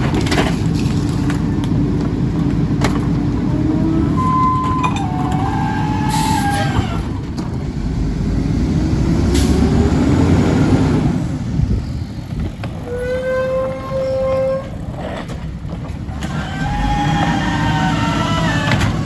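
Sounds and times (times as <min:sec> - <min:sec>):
garbage truck diesel engine running: 0:00.0 - 0:12.9, 0:14.7 - 0:19.0
packing mechanism squealing: 0:03.5 - 0:07.1, 0:16.2 - 0:19.0.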